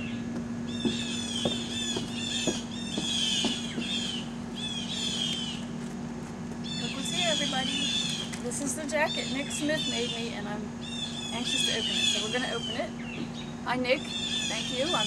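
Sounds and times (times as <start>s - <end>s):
steady low hum: 0.0s - 15.0s
soft knocks: 0.8s - 4.2s
bird chirping: 9.0s - 15.0s.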